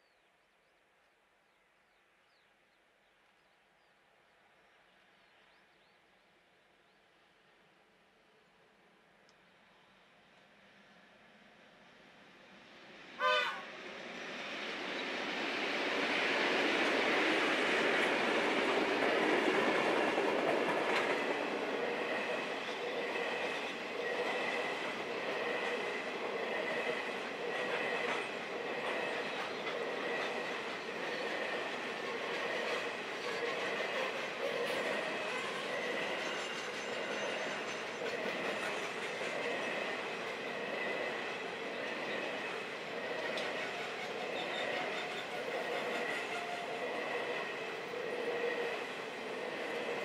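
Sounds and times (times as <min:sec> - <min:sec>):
train wheels clattering on rails: 0:14.6 - 0:50.0.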